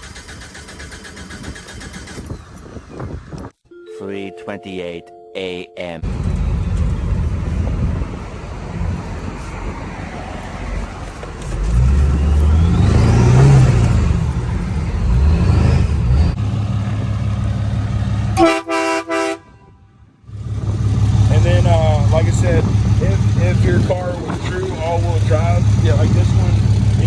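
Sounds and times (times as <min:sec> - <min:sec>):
vehicle engine whining: 0:06.0 - 0:18.4, 0:20.4 - 0:27.0
car horn honking: 0:18.4 - 0:19.8.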